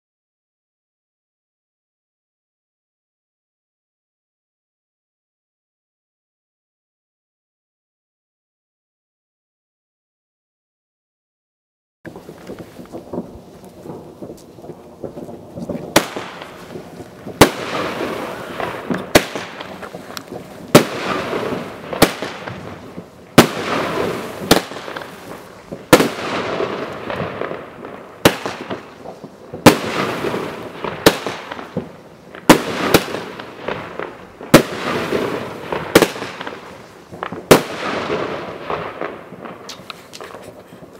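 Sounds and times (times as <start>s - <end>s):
firework bangs: 12.1s - 40.9s.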